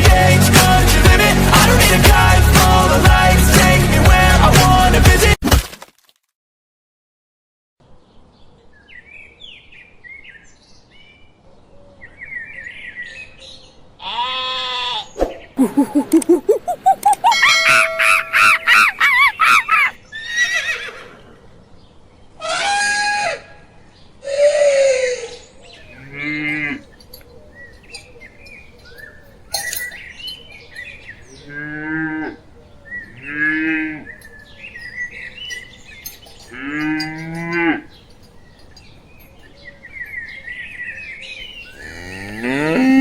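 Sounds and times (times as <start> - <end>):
bird chirps: 25.8 - 31.7, 32.4 - 42.1
low drawn-out mooing: 25.9 - 26.9, 31.3 - 34.3, 36.4 - 37.9, 41.7 - 43.0.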